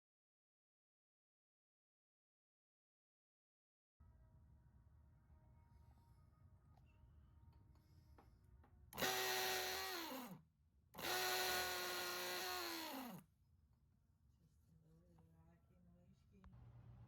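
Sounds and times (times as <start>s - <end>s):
small electric motor running: 9.0s - 10.4s, 11.0s - 13.2s.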